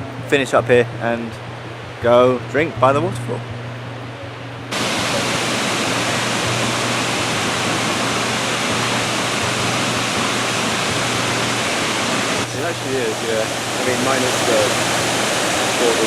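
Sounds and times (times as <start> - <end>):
waterfall roaring: 4.7 - 16.0.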